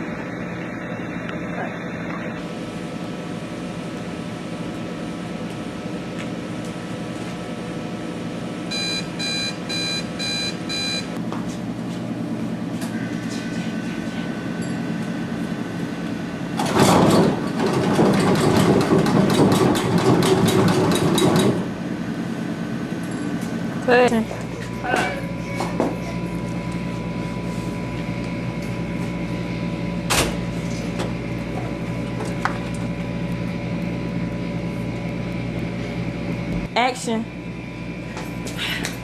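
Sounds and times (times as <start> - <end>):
steady background hum: 0.0 - 39.0
short electronic beeps: 8.7 - 11.1
loud noise with rapid clicks: 16.6 - 21.7.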